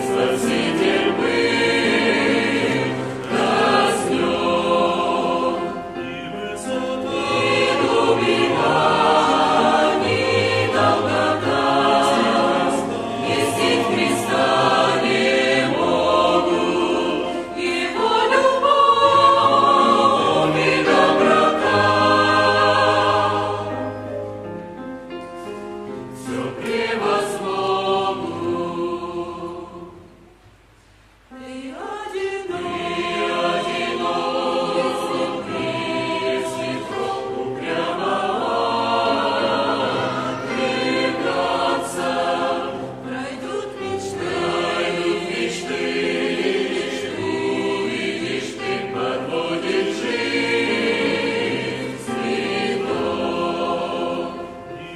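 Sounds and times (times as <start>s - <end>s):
church choir singing a hymn: 0.0s - 30.4s, 31.3s - 54.9s.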